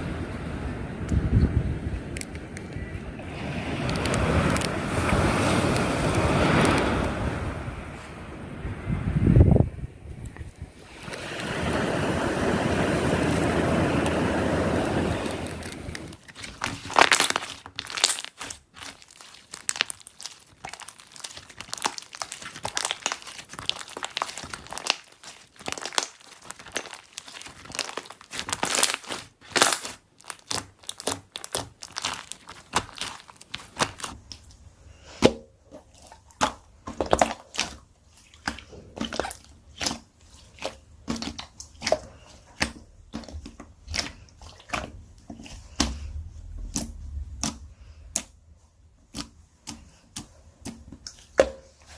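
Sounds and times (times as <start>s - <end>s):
slime squished crackling pops: 15.3s - 34.4s.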